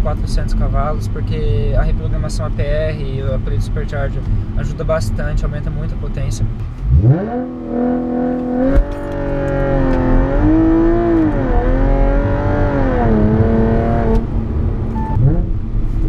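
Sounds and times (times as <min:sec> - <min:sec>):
car engine accelerating: 0:03.3 - 0:16.0.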